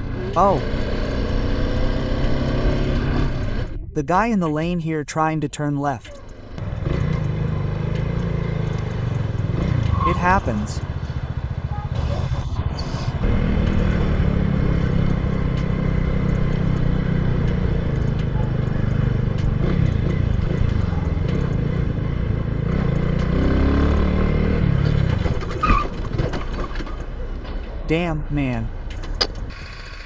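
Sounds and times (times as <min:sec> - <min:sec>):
motorcycle engine running: 0:06.3 - 0:25.6.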